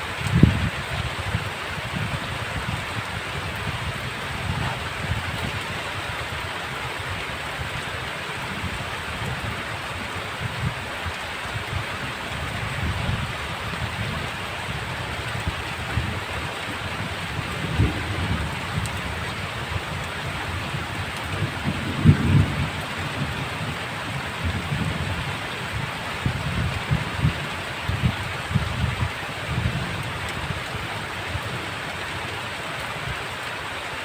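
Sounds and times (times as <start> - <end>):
heavy rain falling: 0.0 - 34.0
thunder rumbling: 0.1 - 6.1, 12.3 - 30.9.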